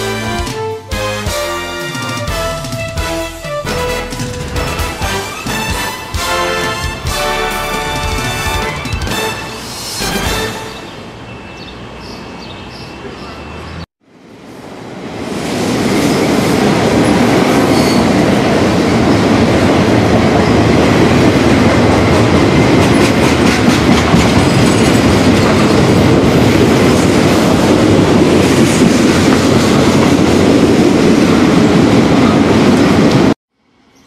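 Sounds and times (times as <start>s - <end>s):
train wheels rumbling: 15.0s - 33.4s.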